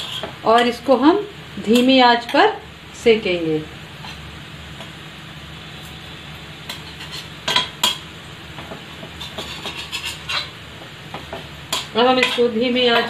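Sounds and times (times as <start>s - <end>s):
metal spatula scraping a pan: 0.0s - 0.7s, 4.0s - 4.3s, 6.7s - 8.0s, 8.7s - 10.6s, 11.7s - 13.0s
oil sizzling in a pan: 0.0s - 13.0s.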